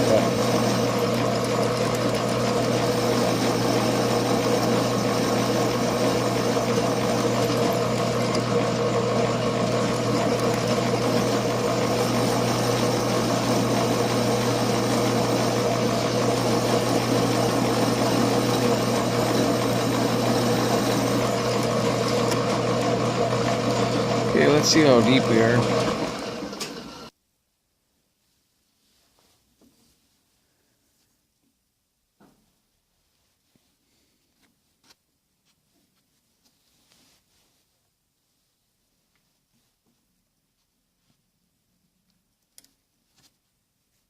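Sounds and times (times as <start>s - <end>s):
drill motor humming: 0.0s - 27.1s.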